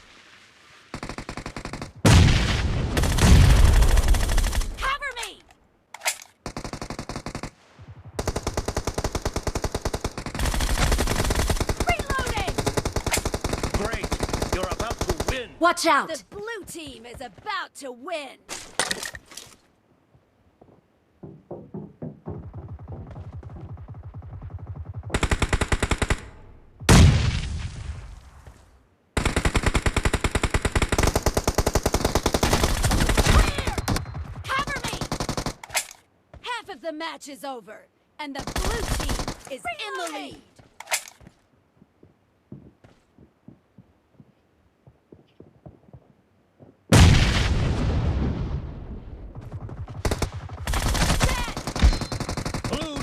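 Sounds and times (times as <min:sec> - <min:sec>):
video game automatic gunfire: 0:08.1 - 0:15.4, 0:22.4 - 0:26.3, 0:49.4 - 0:53.0
soft thuds: 0:20.6 - 0:25.1.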